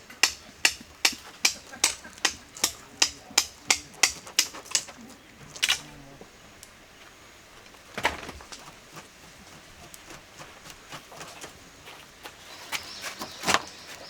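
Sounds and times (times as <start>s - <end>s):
hammer strikes: 0.0s - 4.9s.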